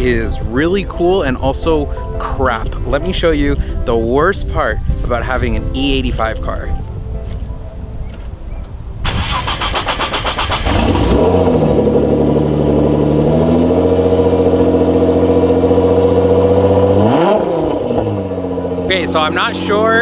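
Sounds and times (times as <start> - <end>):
engine starter cranking: 9.0 - 11.9
car engine loud idle: 9.0 - 19.9.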